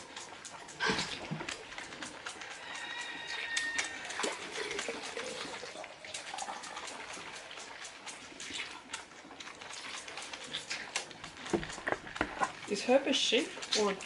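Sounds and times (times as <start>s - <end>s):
animals sucking from feeding bottles: 0.0s - 14.0s.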